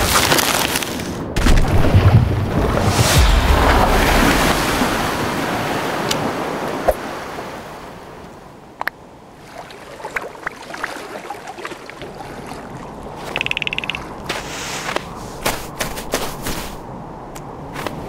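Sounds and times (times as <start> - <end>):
rushing wind: 0.0 - 10.4, 12.0 - 18.0
sea surf: 2.6 - 8.6, 9.2 - 16.9
small clicks and ticks: 13.3 - 14.0.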